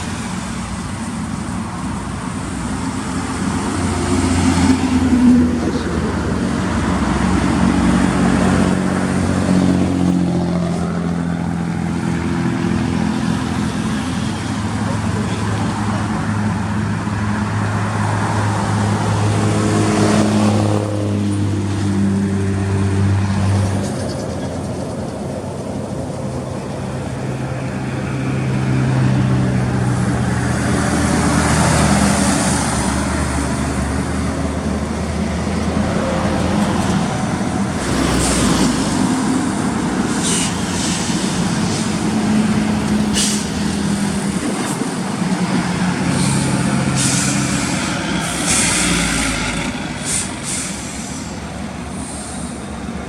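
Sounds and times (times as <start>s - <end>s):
diesel truck engine running: 0.0s - 53.0s
air hisses: 40.0s - 44.1s, 46.1s - 53.0s.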